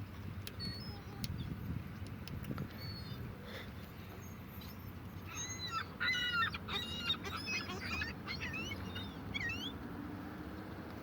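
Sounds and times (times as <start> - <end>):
seagulls squawking: 5.3 - 9.8.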